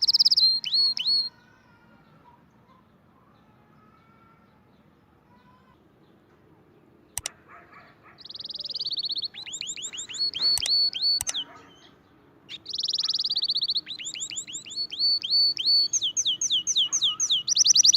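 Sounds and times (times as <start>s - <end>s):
songbird singing trills and whistles: 0.0s - 1.4s, 8.2s - 17.9s
clicks: 10.4s - 11.4s.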